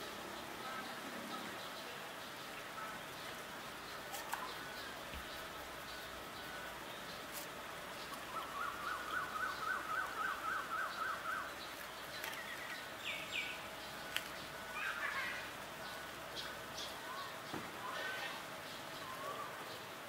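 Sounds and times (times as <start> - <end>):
bird calls and chirps: 0.0 - 20.0
outdoor background noise: 0.0 - 20.0
bird singing rising notes: 8.0 - 13.6.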